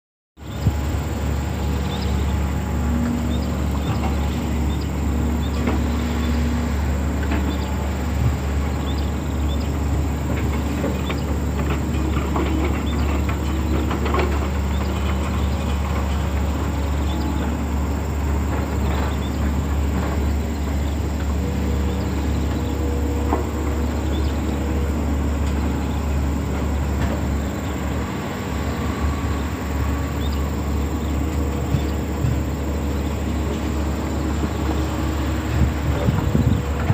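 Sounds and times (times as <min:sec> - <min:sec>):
excavator diesel engine running: 0:00.4 - 0:36.9
machine clanks and knocks: 0:10.2 - 0:17.6, 0:18.2 - 0:28.1, 0:31.2 - 0:33.1.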